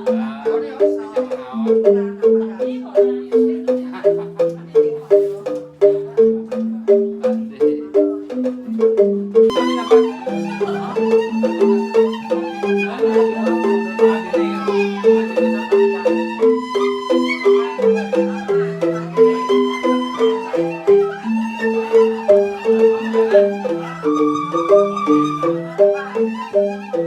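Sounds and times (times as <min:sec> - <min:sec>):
bamboo xylophones playing: 0:00.0 - 0:27.0
flute-like melody: 0:09.5 - 0:27.0.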